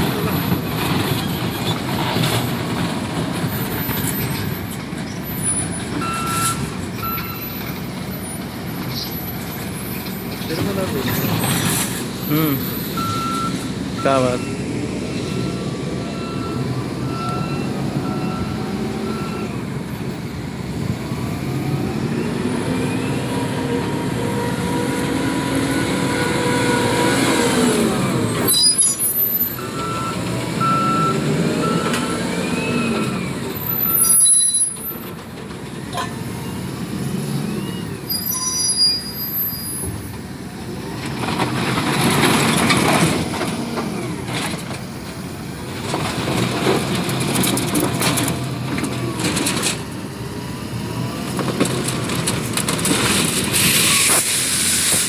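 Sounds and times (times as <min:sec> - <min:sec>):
loader diesel engine revving: 0:07.9 - 0:34.3, 0:35.0 - 0:55.0
reversing beeper: 0:12.2 - 0:19.6, 0:28.4 - 0:34.8.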